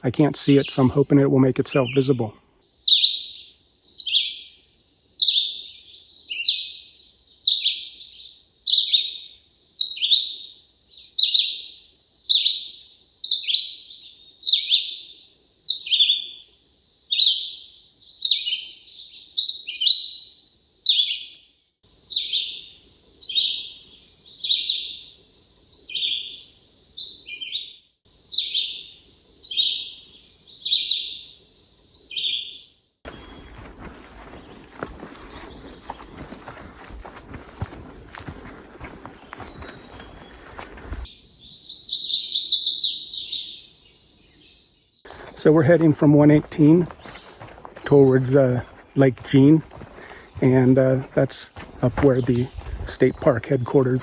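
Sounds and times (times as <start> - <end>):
bird singing slurred phrases: 0.0 - 4.5, 32.0 - 54.0.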